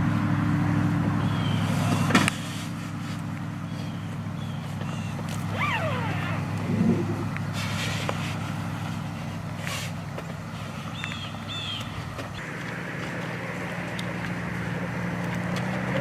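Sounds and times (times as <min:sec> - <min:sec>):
vehicle engine droning: 0:00.0 - 0:16.0
bird chirps: 0:01.2 - 0:02.1, 0:03.7 - 0:07.3, 0:10.9 - 0:12.4.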